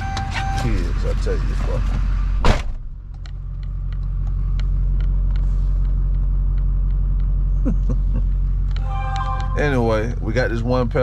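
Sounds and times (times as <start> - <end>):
truck engine running inside cab: 0.0 - 11.0.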